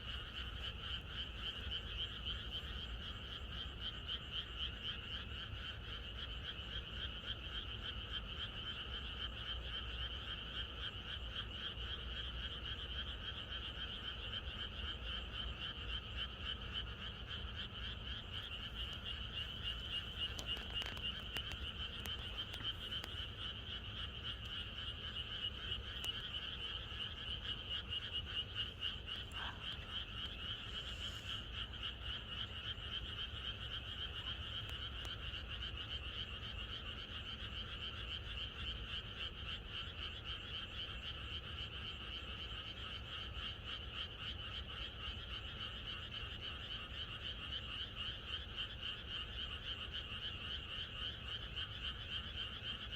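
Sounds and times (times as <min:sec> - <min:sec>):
chorus of frogs croaking: 0:00.0 - 0:52.9.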